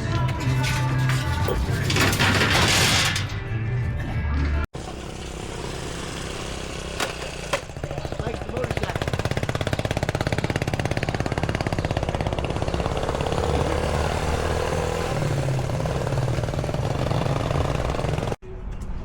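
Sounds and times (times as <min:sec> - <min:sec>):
vehicle engine idling: 0:07.6 - 0:18.4.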